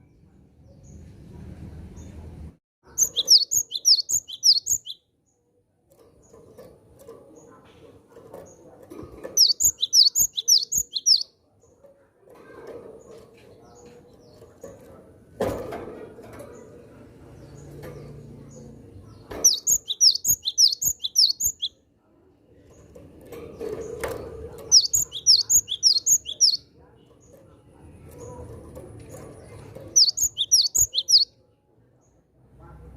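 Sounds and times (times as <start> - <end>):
bird rapid high chirps: 2.9 - 5.0, 9.4 - 11.3, 19.4 - 21.7, 24.7 - 26.6, 29.9 - 31.3.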